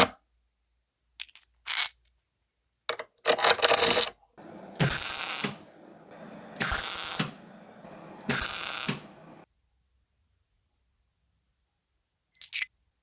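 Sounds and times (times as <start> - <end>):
mechanical ratcheting strokes: 4.7 - 9.2.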